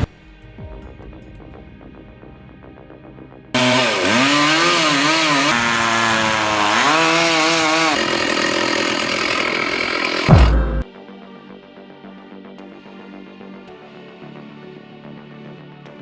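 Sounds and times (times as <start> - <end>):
chainsaw revving and cutting: 3.6 - 10.8.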